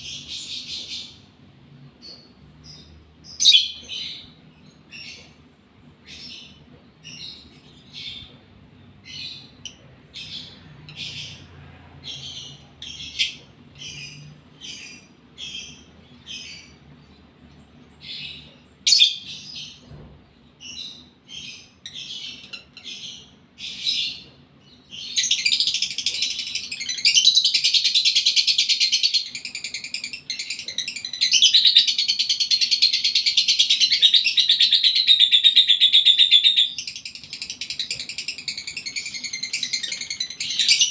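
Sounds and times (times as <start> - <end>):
lovebird chirping: 2.0 - 4.3, 20.6 - 40.9.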